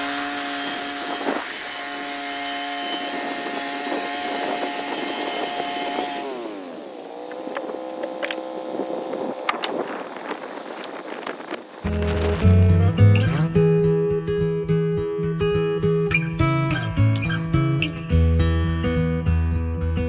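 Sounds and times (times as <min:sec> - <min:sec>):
chainsaw cutting wood: 0:00.0 - 0:13.2.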